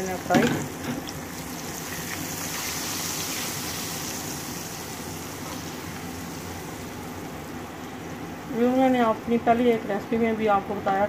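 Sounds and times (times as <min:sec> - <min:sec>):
chickpeas sizzling in oil: 0:00.0 - 0:07.6.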